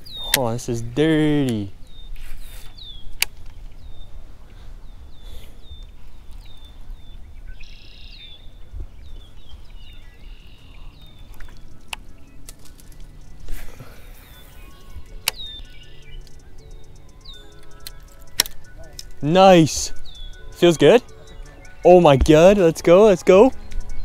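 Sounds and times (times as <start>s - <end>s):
small bird chirping: 0.0s - 24.0s
wind rumble on microphone: 1.7s - 16.4s
sharp clicks: 3.1s - 3.6s, 11.0s - 24.0s.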